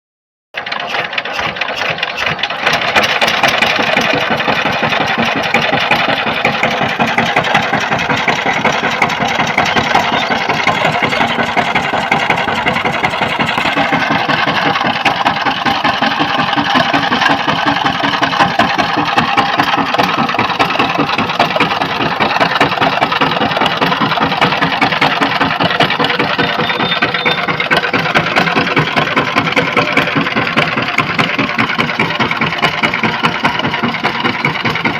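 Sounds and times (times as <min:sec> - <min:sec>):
power tiller engine running: 0:00.6 - 0:34.9.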